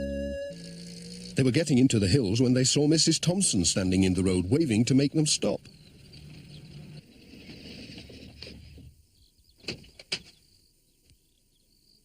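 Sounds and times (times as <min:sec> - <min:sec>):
van engine rumbling: 0:00.0 - 0:09.4.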